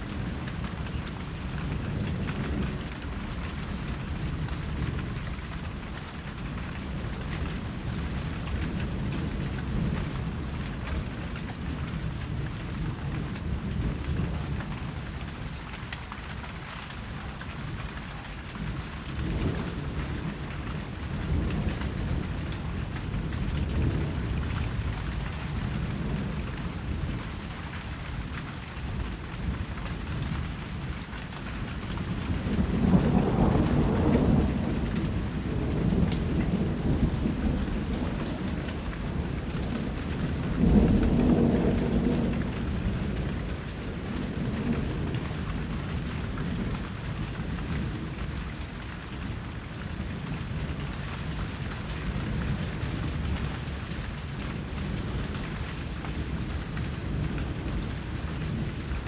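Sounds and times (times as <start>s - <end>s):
steady rain: 0.0s - 59.0s
low thunder rolls: 17.0s - 31.0s, 31.7s - 59.0s.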